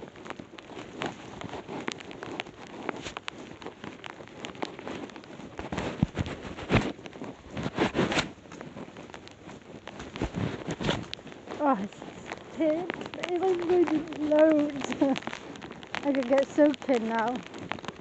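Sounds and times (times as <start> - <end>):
raindrops tapping near microphone: 0.0 - 18.0
heavy rain falling: 7.4 - 18.0.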